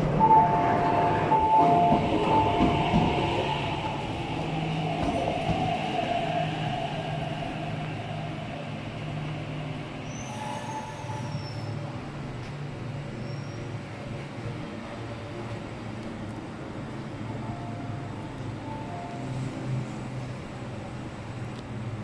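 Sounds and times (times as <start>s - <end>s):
train motor and wheel hum: 0.0s - 22.0s
high squeal: 10.0s - 11.8s.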